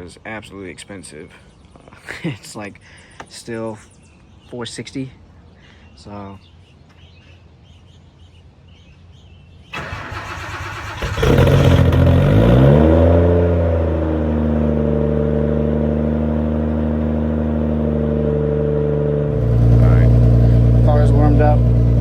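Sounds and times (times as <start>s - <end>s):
car engine idling: 9.7s - 12.5s, 13.4s - 22.0s
starter motor cranking: 9.8s - 12.1s.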